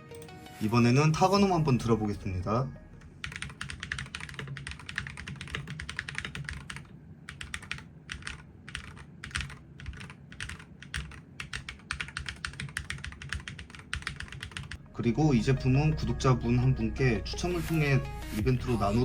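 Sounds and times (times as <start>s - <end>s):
keyboard typing: 2.9s - 14.8s.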